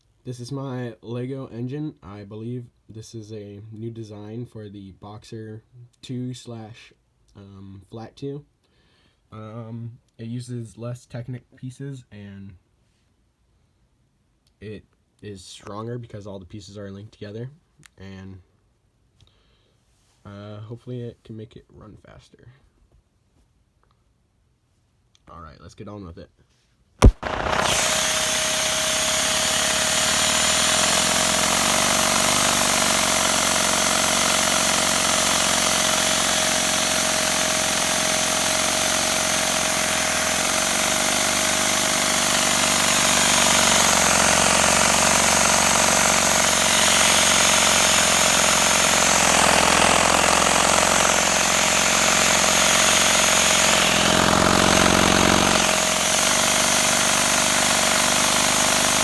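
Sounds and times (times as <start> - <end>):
plastic pistons rattling: 27.0 - 59.0
vacuum cleaner running: 27.0 - 59.0.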